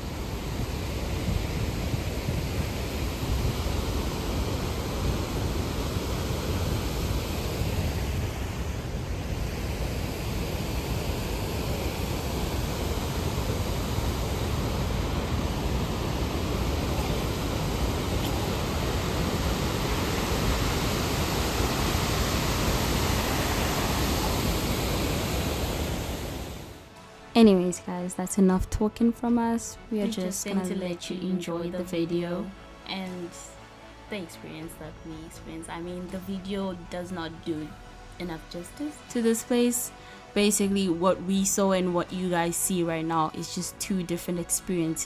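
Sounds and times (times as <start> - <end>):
waterfall roaring: 0.0 - 26.9.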